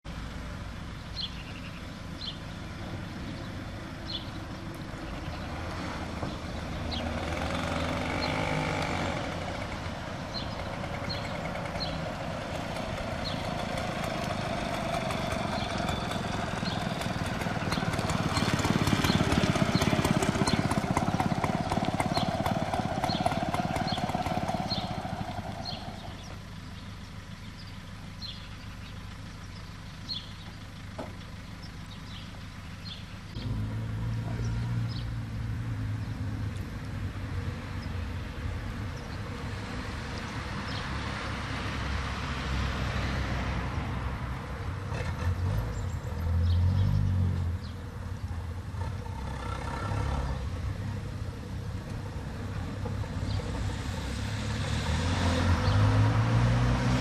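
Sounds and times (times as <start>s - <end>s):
moped engines running: 4.0s - 35.3s.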